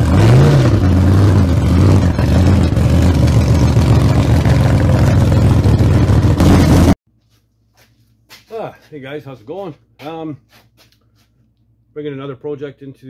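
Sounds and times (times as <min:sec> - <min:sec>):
loud engine running: 0:00.0 - 0:07.0.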